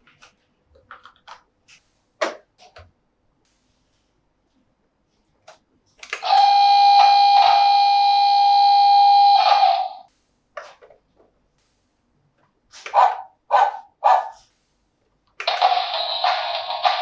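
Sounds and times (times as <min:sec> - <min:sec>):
electronic held tone: 0:06.2 - 0:10.1
recorded dog barks: 0:12.9 - 0:14.5.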